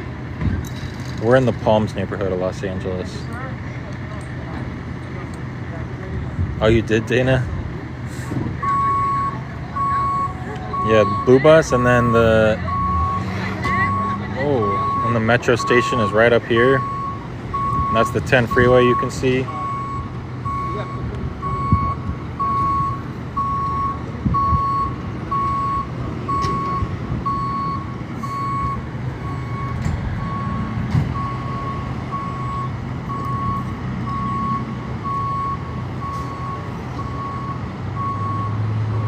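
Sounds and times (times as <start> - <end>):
truck engine running: 0.0 - 39.0
truck reversing alarm beeping: 8.0 - 39.0.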